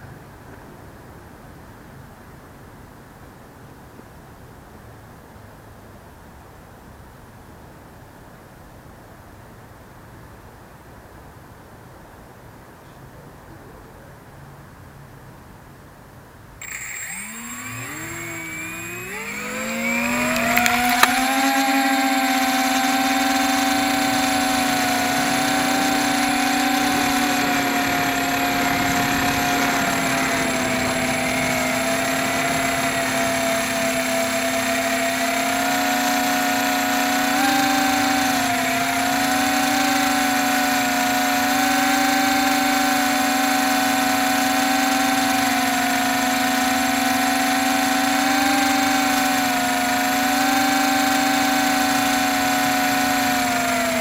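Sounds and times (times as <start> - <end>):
quadcopter motors whining: 16.6 - 54.0.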